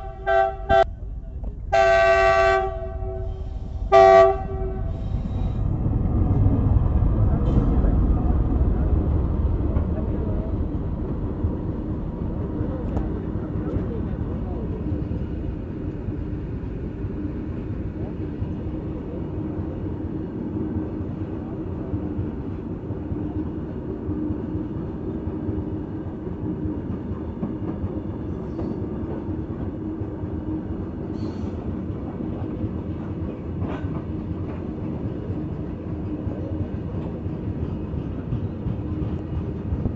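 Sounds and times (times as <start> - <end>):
hum: 0.0 - 17.0.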